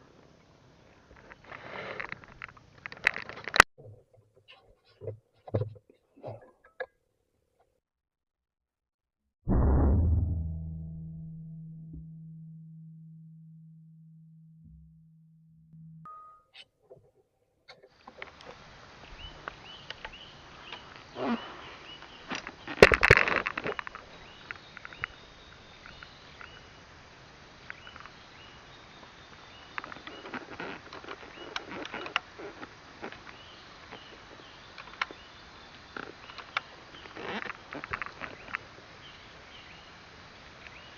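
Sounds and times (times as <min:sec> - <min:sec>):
small clicks: 0:01.1 - 0:03.7
loud burst: 0:09.5 - 0:10.9.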